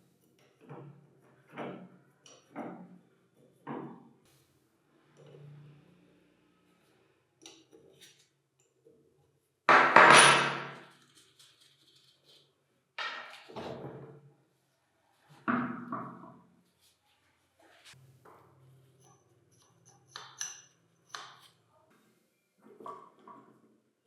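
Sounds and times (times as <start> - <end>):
metal parts being knocked: 9.7 - 10.8.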